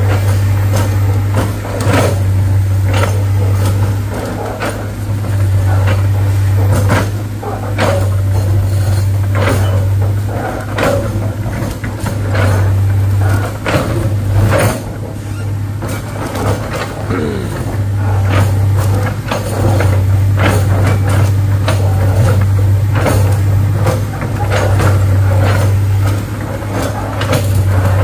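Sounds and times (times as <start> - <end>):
diesel engine hum: 0.0 - 28.0.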